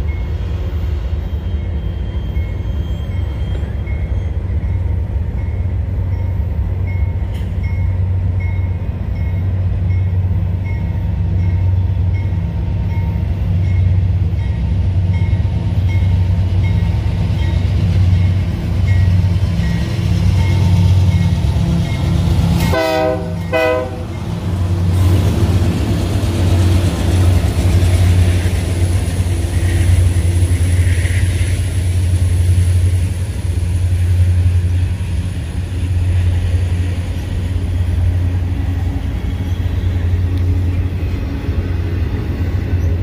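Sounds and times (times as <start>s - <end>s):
freight train rumbling past: 0.0s - 43.0s
locomotive horn blasts: 22.6s - 24.2s.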